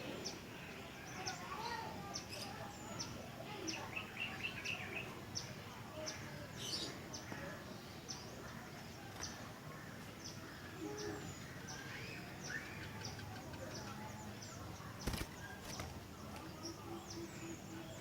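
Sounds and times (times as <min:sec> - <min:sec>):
bird chirps: 0:00.0 - 0:07.4
bird warbled phrases: 0:00.0 - 0:07.7.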